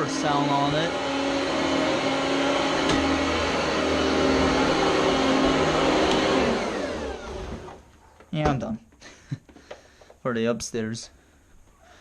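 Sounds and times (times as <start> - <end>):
motor spinning down whine: 0.0 - 7.8
vacuum cleaner motor running: 0.0 - 7.9.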